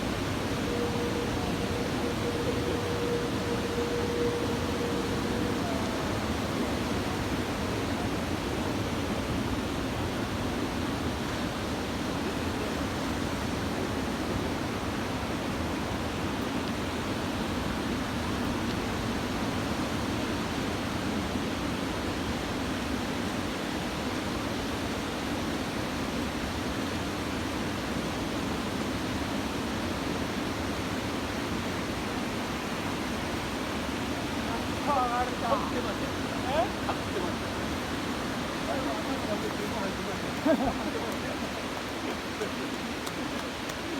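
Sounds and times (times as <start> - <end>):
surf roaring: 0.0 - 19.6, 29.4 - 43.9.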